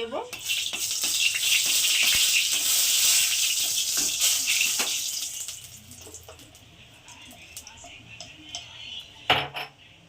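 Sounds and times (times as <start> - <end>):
chillies sizzling in hot oil: 0.0 - 8.9
oil crackles: 0.4 - 6.6.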